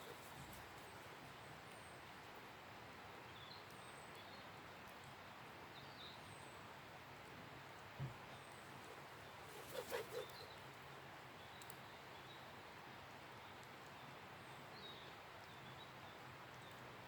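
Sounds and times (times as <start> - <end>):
soft steady hiss: 0.0 - 17.0
distant birds chirping: 8.1 - 10.7.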